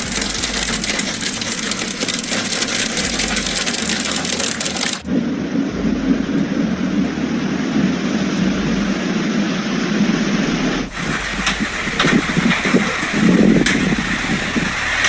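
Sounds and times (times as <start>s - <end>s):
hailstone impacts: 0.0s - 7.2s
gusty rumbling: 0.0s - 15.0s
rain and hail rushing: 0.0s - 15.0s.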